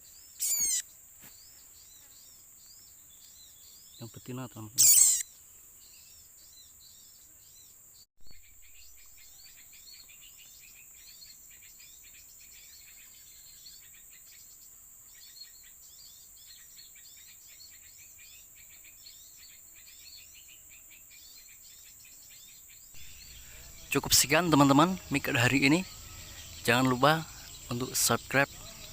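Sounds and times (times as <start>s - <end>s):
songbirds chirping: 0.0s - 28.9s
high insect drone: 0.1s - 3.2s, 4.0s - 28.9s.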